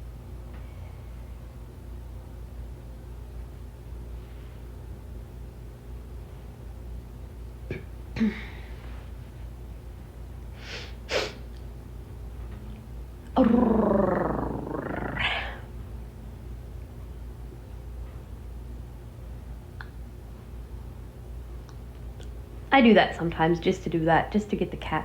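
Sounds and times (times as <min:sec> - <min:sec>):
woman hissing like a cat: 0:10.6 - 0:11.4, 0:13.4 - 0:15.7.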